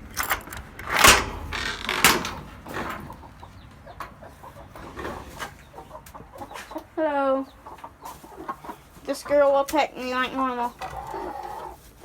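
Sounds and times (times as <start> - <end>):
hens clucking: 2.2 - 12.0.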